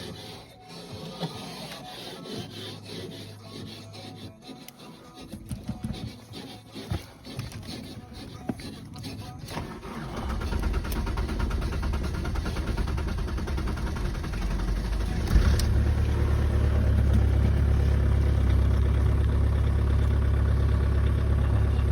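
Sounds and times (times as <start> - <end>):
diesel engine cold-starting: 9.1 - 21.9.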